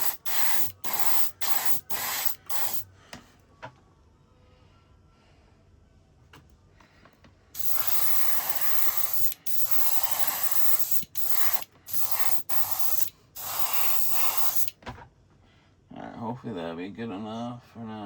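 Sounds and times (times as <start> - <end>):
spray paint hissing: 0.0 - 2.9, 7.6 - 14.7.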